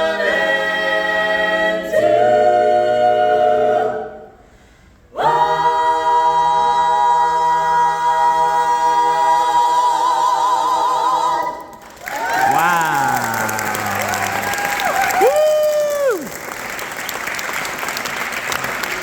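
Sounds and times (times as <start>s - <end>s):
a cappella choir singing harmony: 0.0s - 14.8s.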